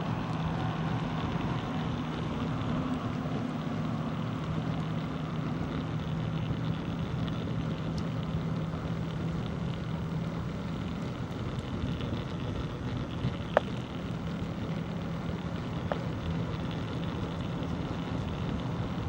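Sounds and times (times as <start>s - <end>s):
low hum: 0.0s - 19.0s
wind and rolling noise: 0.0s - 19.0s.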